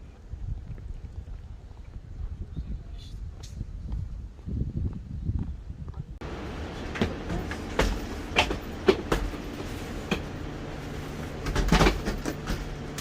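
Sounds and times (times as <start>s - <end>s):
train rumbling: 6.1s - 13.0s
knocks and clatters: 6.9s - 10.4s, 11.2s - 13.0s.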